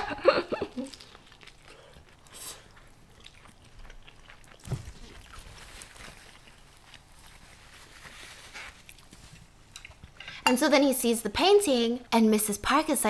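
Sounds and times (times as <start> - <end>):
faint chewing: 0.6 - 10.4.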